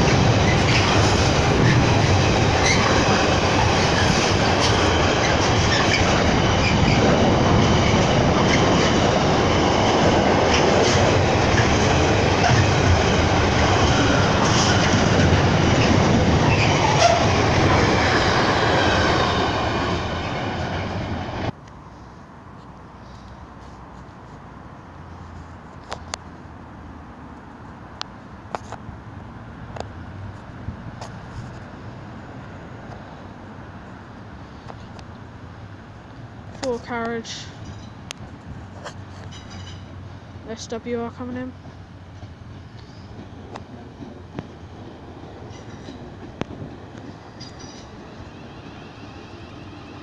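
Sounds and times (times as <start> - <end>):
train wheels rumbling and clattering: 0.0 - 21.6, 33.9 - 50.0.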